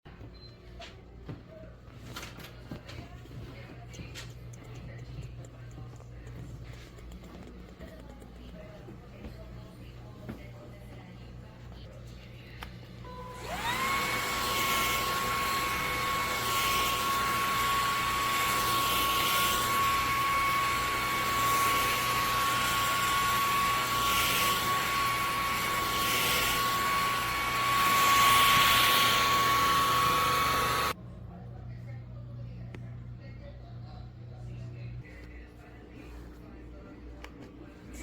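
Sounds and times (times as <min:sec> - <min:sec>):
vacuum motor whine: 0:12.6 - 0:31.0.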